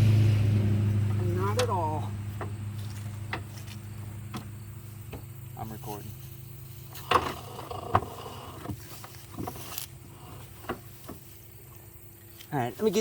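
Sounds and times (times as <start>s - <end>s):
low steady hum: 0.0s - 13.0s
rustle: 0.0s - 13.0s
handling knocks: 1.4s - 5.4s.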